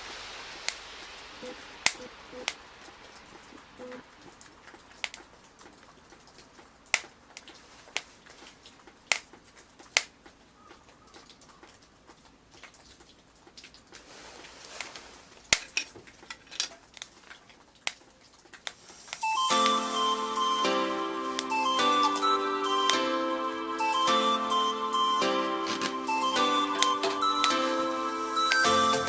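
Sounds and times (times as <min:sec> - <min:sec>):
fire hissing: 0:00.0 - 0:04.7, 0:18.6 - 0:20.3, 0:25.6 - 0:29.0
wood fire crackling: 0:00.0 - 0:24.4, 0:25.6 - 0:29.0.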